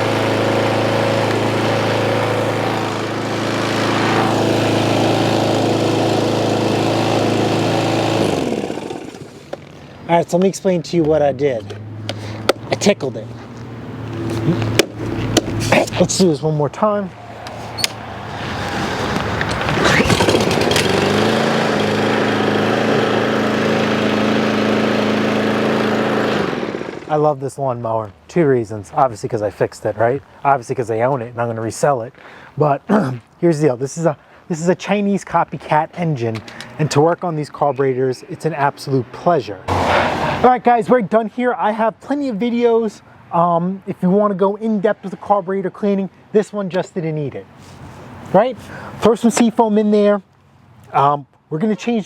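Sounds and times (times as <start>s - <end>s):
lawn mower engine running: 0.0s - 10.0s, 17.5s - 27.2s, 39.7s - 40.5s.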